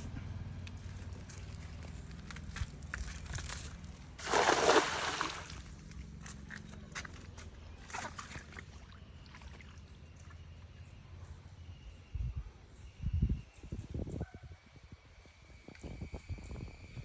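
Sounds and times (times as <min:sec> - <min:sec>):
water sloshing and splashing: 0:04.2 - 0:10.7.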